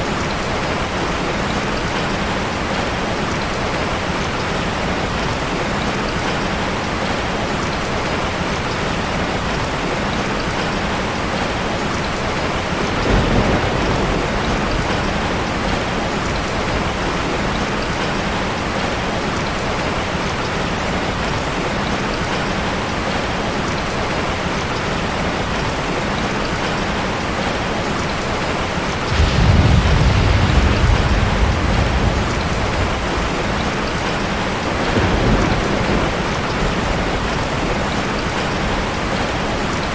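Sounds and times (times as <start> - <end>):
thunder rumbling: 12.8 - 17.7, 29.0 - 39.9
heavy rain hissing: 25.1 - 39.9.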